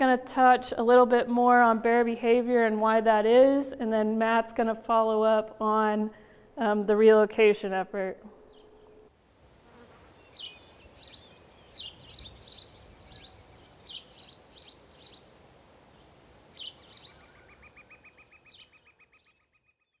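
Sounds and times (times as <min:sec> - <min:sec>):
faint outdoor hiss: 0:00.0 - 0:19.4
small birds chirping: 0:10.1 - 0:20.0.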